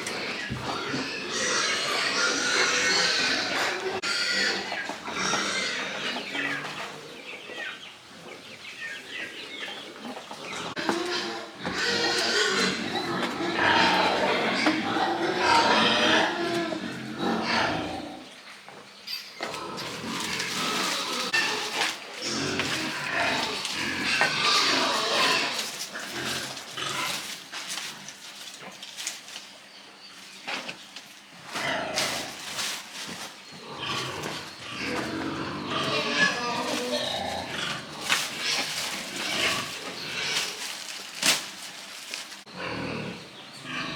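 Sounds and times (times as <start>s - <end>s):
farm animals calling: 0.0s - 43.9s
pigs vocalizing: 19.4s - 29.4s, 30.5s - 43.9s.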